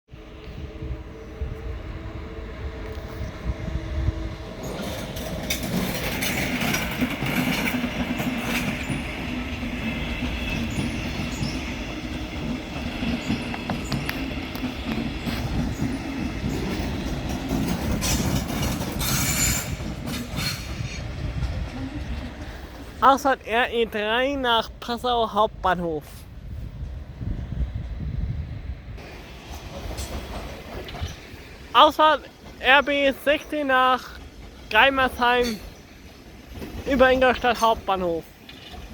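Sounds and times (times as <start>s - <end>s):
train rumbling on rails: 0.1s - 38.9s
wheel squeal: 18.0s - 21.0s.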